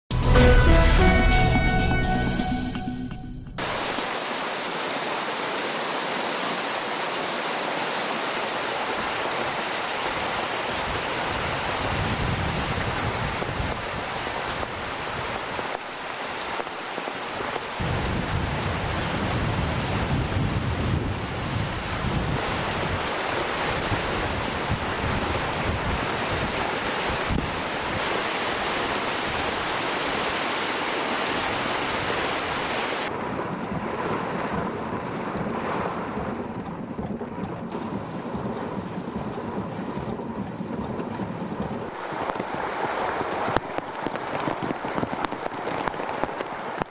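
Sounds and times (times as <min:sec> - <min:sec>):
heavy rain pouring: 0:00.1 - 0:46.9
wind blowing: 0:03.5 - 0:46.8
wind buffeting microphone: 0:08.8 - 0:15.8, 0:17.8 - 0:30.5, 0:31.1 - 0:46.9.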